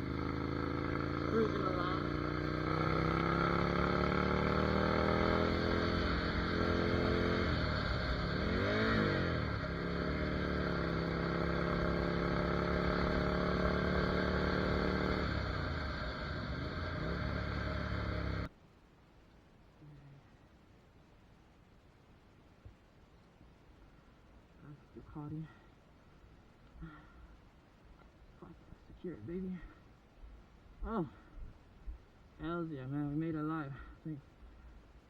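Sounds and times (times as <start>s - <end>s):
motorcycle engine accelerating: 0.0s - 18.5s.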